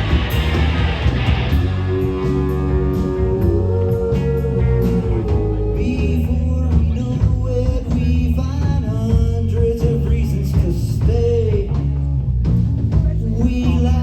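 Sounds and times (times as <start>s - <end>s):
live rock band playing: 0.0s - 14.0s
person singing: 1.6s - 11.9s, 13.1s - 14.0s.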